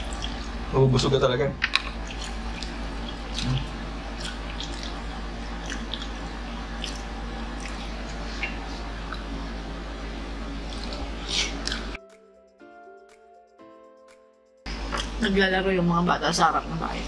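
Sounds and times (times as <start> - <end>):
steady low hum: 0.0 - 12.0, 14.6 - 17.0
chewing and mouth smacking: 1.6 - 9.3, 10.7 - 12.0.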